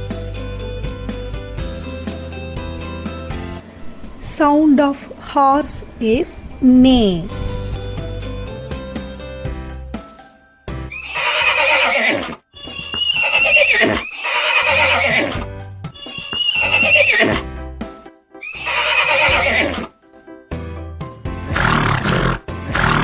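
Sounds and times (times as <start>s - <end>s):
horse neighing: 10.9s - 17.5s, 18.4s - 19.9s, 21.4s - 23.0s.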